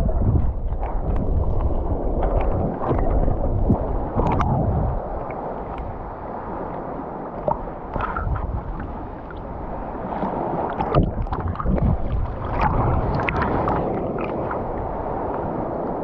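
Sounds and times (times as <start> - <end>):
surf churning and splashing: 0.0 - 16.0.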